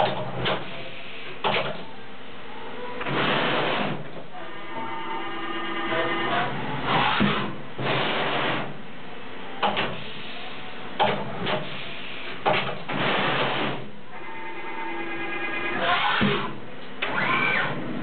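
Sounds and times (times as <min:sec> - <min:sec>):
machine hissing bursts: 0:03.0 - 0:04.1, 0:04.9 - 0:08.8, 0:11.5 - 0:13.9
machine clicks and knocks: 0:11.0 - 0:11.7, 0:12.4 - 0:13.8.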